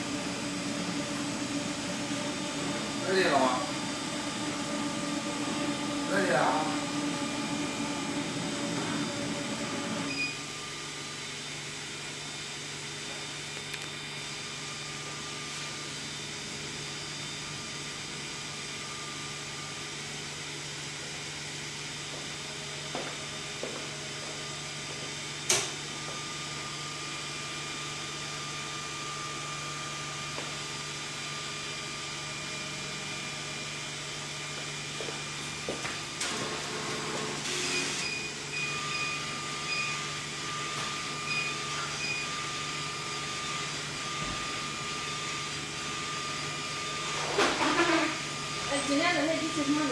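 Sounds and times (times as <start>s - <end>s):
louder hum: 0.0s - 10.1s
printer machine hum: 0.0s - 12.0s, 12.9s - 48.8s.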